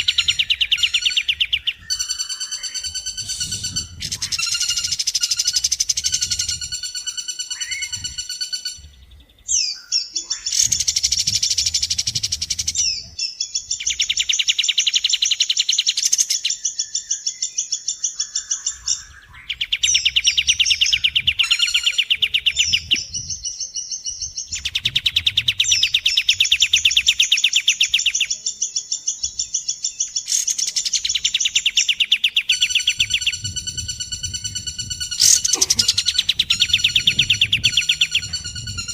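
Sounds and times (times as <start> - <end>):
rattling bird trills: 30.2 - 38.9.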